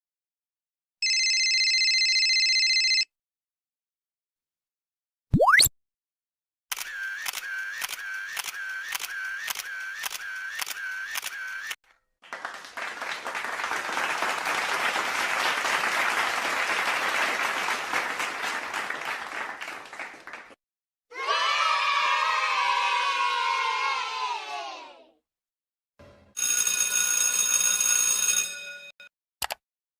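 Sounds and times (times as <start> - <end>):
camera shutter clicking: 6.7 - 11.8
crowd applauding: 12.2 - 20.6.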